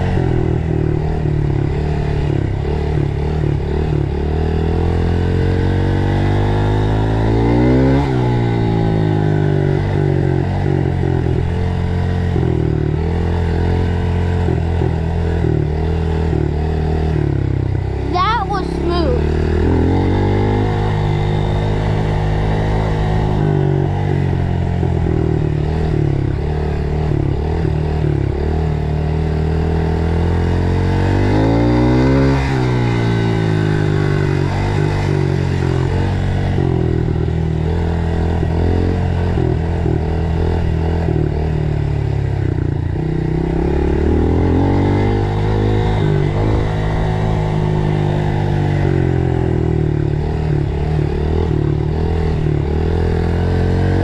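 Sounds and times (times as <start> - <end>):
dirt bike engine revving: 17.8 - 24.5, 25.4 - 42.0, 42.6 - 54.0.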